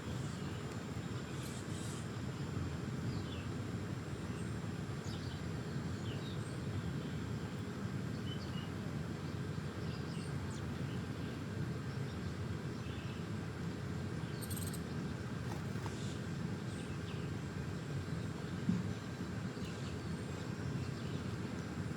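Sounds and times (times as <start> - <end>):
small birds chirping: 14.3 - 17.3.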